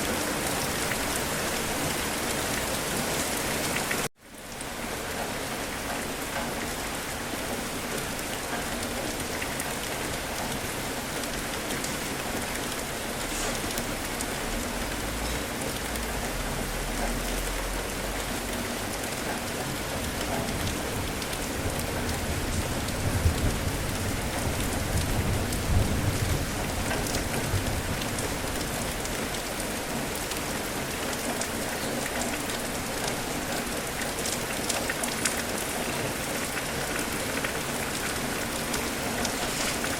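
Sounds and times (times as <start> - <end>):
steady rain falling: 0.0 - 39.9
low rumble of thunder: 20.0 - 29.6.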